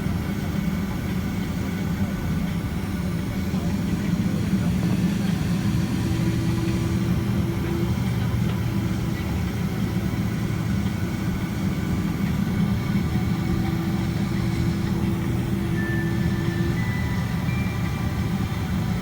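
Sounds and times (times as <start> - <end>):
jet engines idling in cabin: 0.0 - 19.0.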